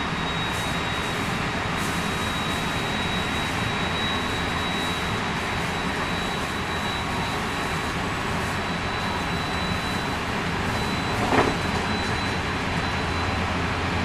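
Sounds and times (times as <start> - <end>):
high-pitched motor tone: 0.0 - 13.5
wheels rumbling on rail: 0.0 - 14.0
train bump: 11.1 - 11.9.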